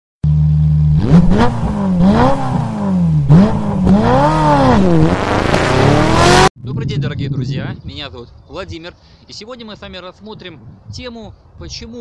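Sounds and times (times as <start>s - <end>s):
car engine idling and revving: 0.2s - 6.5s.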